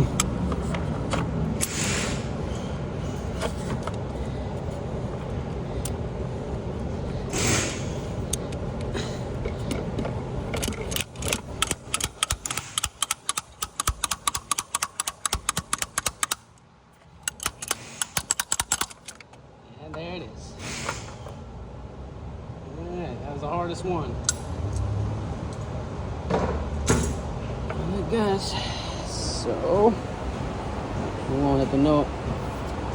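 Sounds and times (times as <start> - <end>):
socket ratchet clicking: 10.5 - 16.5, 17.2 - 19.3.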